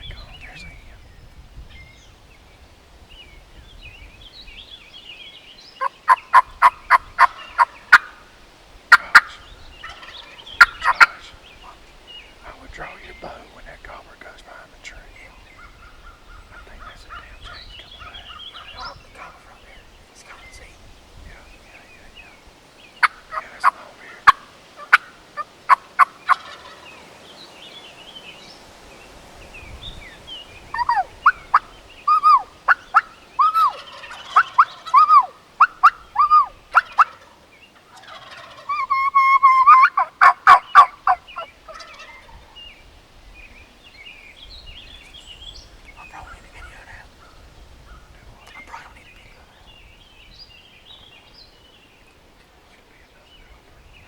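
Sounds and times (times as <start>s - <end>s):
wild turkey calling: 4.4s - 20.7s, 21.4s - 27.8s, 30.1s - 53.9s
turkey gobble: 5.8s - 8.3s, 8.9s - 11.8s, 23.0s - 27.0s, 30.7s - 42.6s.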